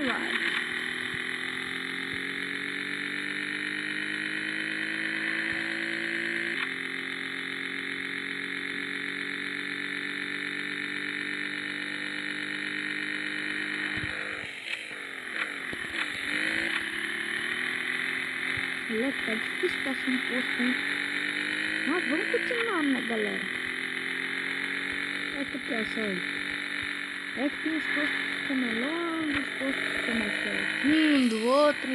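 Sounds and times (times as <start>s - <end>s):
motorcycle engine revving: 0.0s - 31.9s.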